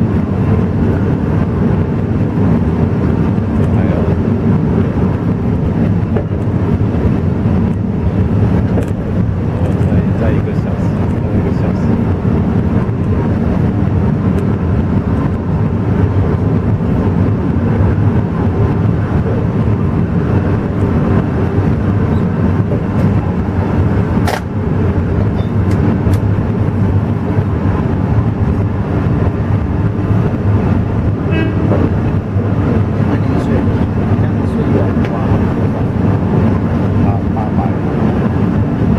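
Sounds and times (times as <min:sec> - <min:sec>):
train rumbling: 0:00.0 - 0:38.9
sharp click: 0:24.2 - 0:24.5.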